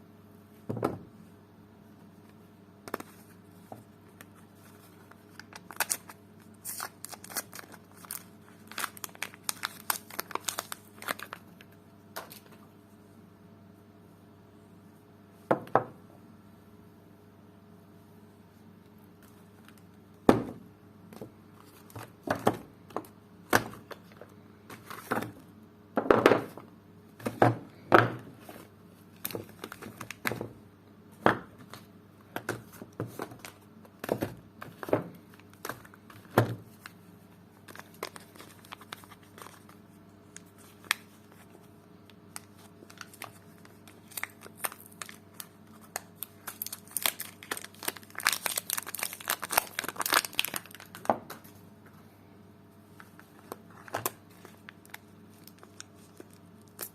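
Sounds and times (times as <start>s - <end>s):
soap wrapping crinkling and tearing: 4.1s - 12.5s, 29.1s - 30.4s, 37.6s - 41.6s, 42.3s - 51.5s, 53.0s - 56.9s.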